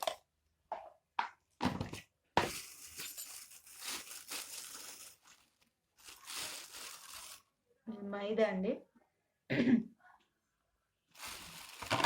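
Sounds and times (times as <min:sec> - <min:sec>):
plastic packet crinkling: 0:02.4 - 0:07.5, 0:11.2 - 0:12.0.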